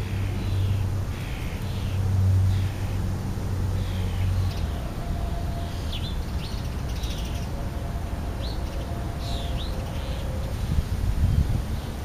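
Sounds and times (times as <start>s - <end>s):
small birds chirping: 5.5s - 7.6s.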